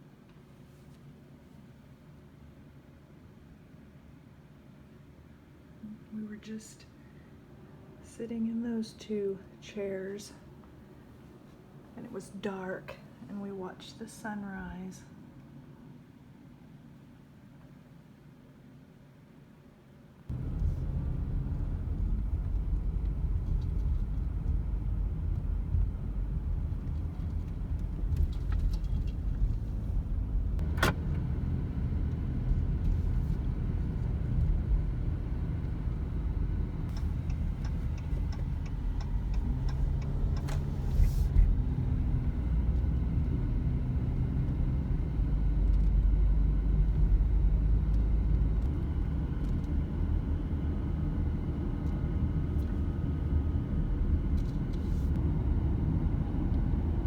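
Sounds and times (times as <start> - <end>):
car road rumble from inside: 20.3 - 57.0
light ticks: 36.9 - 41.4.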